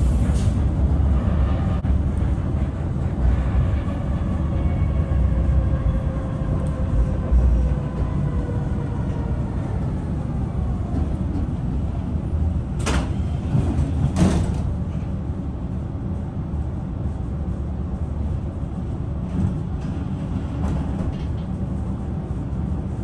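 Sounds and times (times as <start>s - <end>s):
tram doors hissing clunks: 0.0s - 0.7s, 12.6s - 15.2s
tram motor whine: 0.0s - 14.8s
tram rumbling: 0.0s - 23.0s.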